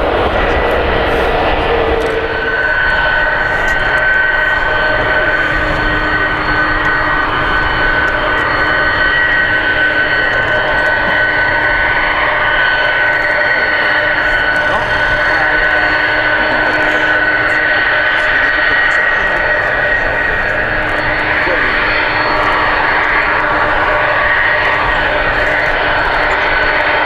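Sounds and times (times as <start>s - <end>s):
jet engines whining: 0.0s - 27.0s.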